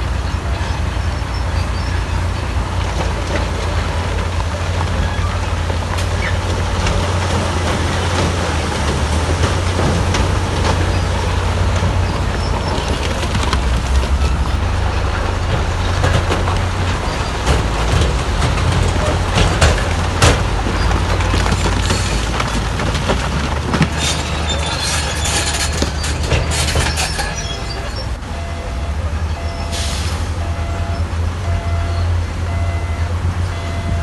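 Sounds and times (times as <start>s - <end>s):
bulldozer engine rumbling: 0.0s - 34.0s
steel tracks clanking and squealing: 0.0s - 34.0s
reversing alarm beeping: 27.2s - 34.0s.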